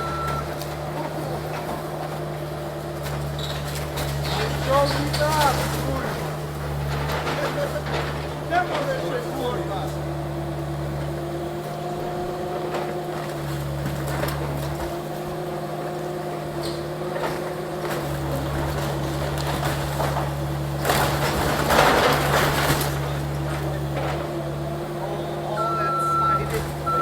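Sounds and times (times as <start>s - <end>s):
demolition debris crash: 0.0s - 27.0s
excavator diesel engine running: 0.0s - 27.0s
knocks and clatter: 3.1s - 9.2s, 17.1s - 24.4s.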